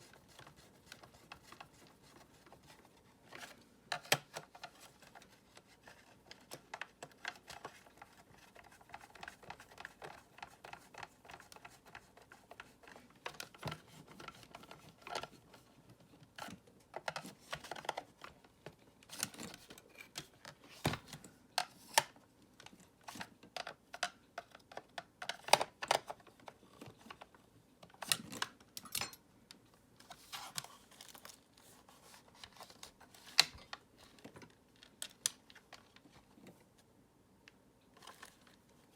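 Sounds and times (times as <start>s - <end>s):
plastic parts clicking and knocking: 0.0s - 29.2s.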